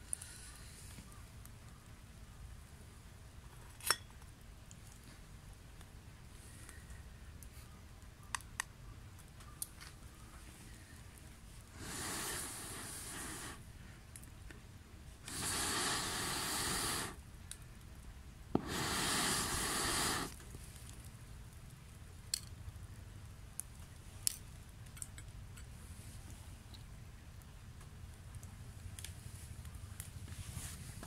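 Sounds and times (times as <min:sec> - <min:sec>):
torch hissing: 0:11.7 - 0:13.7, 0:15.2 - 0:17.2, 0:18.5 - 0:20.4.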